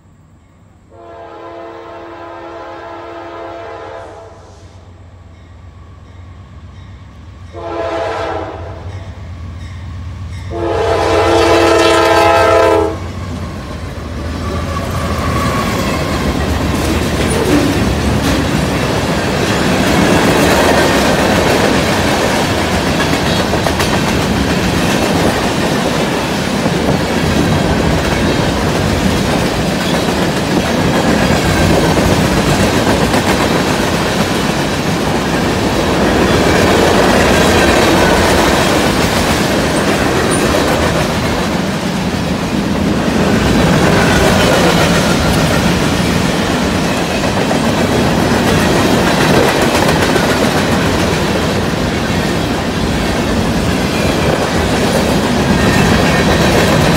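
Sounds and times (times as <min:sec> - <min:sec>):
diesel locomotives running: 0:00.0 - 0:56.9
locomotive air horn blasts: 0:00.9 - 0:04.9, 0:07.5 - 0:08.9, 0:10.5 - 0:13.1
wheels clacking over rail joints: 0:43.2 - 0:56.9.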